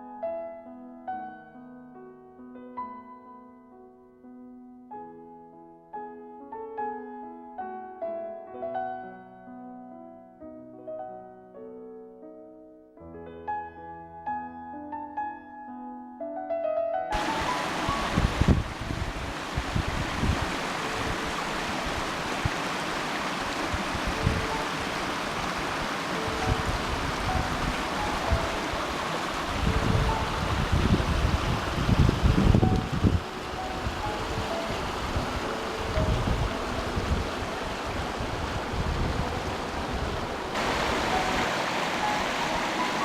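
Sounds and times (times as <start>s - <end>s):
running water rushing: 17.2s - 43.0s
wind buffeting microphone: 17.2s - 43.0s.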